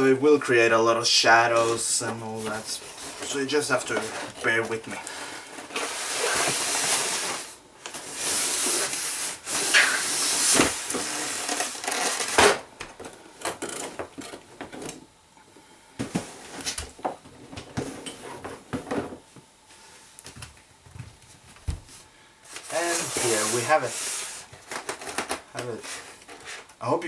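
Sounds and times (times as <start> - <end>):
packaging clicks and rustles: 24.6 - 26.4.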